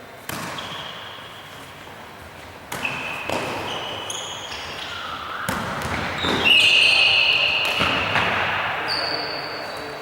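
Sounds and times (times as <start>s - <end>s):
ball impacts: 0.2s - 0.9s, 2.7s - 3.9s, 5.5s - 6.9s, 7.5s - 8.8s
shoes squeaking on court floor: 0.3s - 10.0s.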